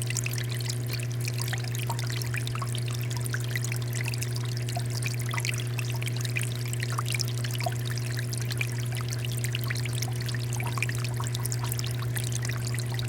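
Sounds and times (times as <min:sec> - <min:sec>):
fountain water pouring and splashing: 0:00.0 - 0:13.0
steady low hum: 0:07.6 - 0:13.0.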